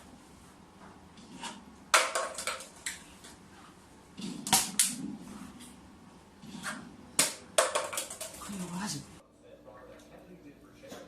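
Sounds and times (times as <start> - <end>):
sharp knocks and clacks: 7.2 - 8.5.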